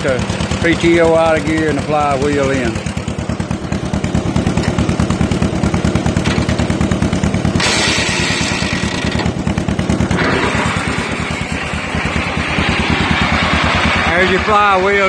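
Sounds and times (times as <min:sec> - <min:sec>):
tractor engine running: 0:00.0 - 0:15.0
harsh rushing noise: 0:07.6 - 0:15.0.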